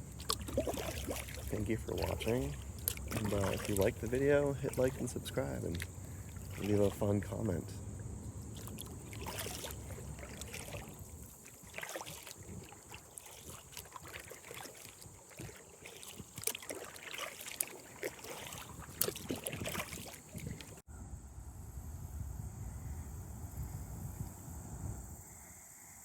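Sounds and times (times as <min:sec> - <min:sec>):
steady hush: 0:00.0 - 0:11.8
paddle splashing in water: 0:00.0 - 0:20.8.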